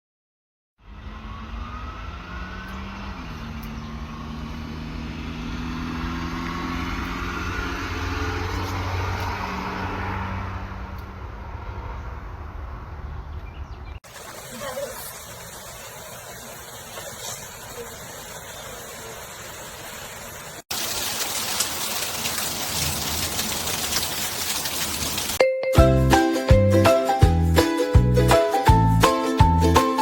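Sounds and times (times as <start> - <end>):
engine humming: 0.8 - 13.0.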